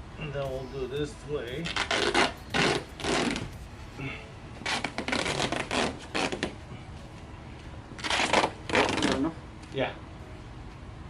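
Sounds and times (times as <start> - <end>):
foam cubes rubbing and scraping: 4.6 - 6.5.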